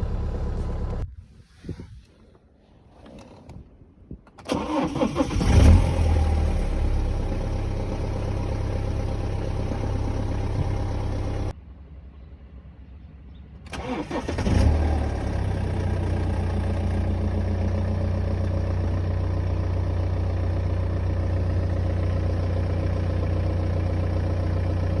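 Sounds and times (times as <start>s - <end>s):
diesel engine running and idling: 0.0s - 1.0s, 4.5s - 11.5s, 13.7s - 25.0s
engine cranking: 4.4s - 6.3s, 13.7s - 17.0s.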